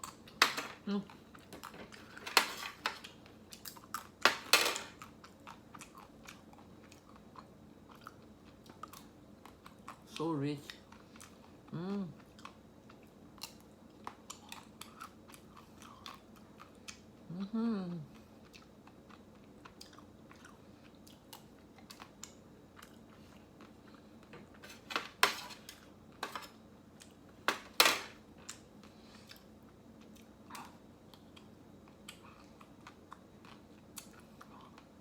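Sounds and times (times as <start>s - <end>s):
person chewing ice cream: 5.0s - 17.4s, 18.0s - 24.6s, 28.4s - 35.0s.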